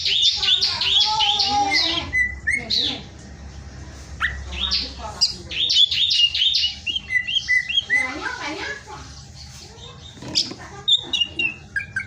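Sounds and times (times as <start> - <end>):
bird singing chirps and whistles: 5.6 - 8.3.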